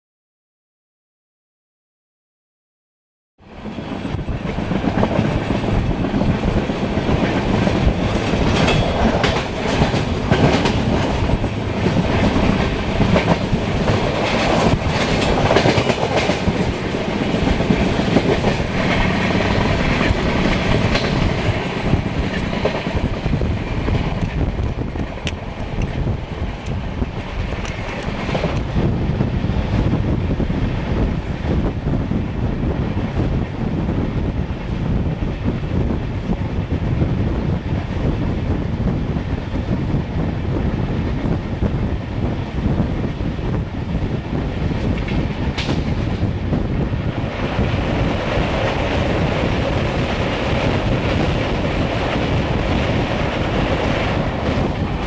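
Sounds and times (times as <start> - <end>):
train wheels rumbling on rail: 3.4 - 55.0
clicks and clatter: 27.5 - 28.7.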